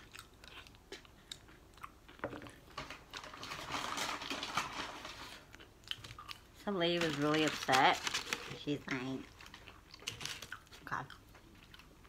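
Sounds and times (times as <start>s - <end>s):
chewing: 0.0s - 2.8s, 5.4s - 6.6s, 9.2s - 12.0s
packet crinkling and tearing: 2.8s - 10.8s.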